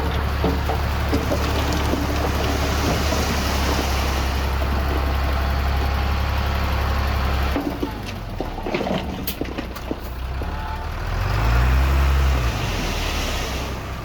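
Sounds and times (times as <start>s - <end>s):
metal clanks and knocks: 0.0s - 4.0s, 7.5s - 10.6s
diesel engine running: 0.0s - 14.0s.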